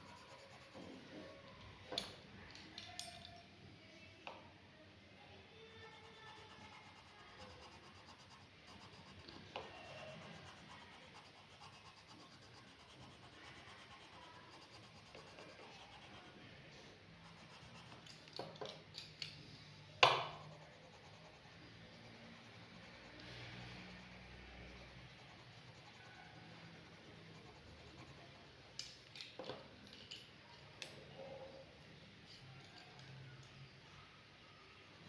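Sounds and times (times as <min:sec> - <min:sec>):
pen scratching on paper: 0:00.0 - 0:00.9, 0:05.9 - 0:16.4, 0:17.2 - 0:18.0, 0:20.4 - 0:28.4.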